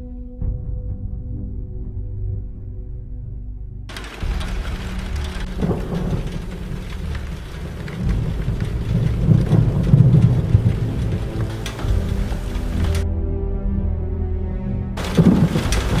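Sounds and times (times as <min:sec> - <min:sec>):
heavy rain: 0:03.9 - 0:13.0, 0:15.0 - 0:16.0
rolling thunder rumble: 0:03.9 - 0:13.1, 0:15.0 - 0:16.0.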